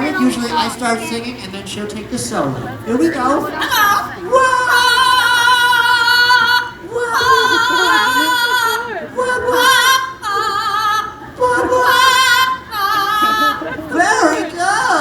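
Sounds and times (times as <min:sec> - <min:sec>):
person singing opera: 0:03.7 - 0:15.0.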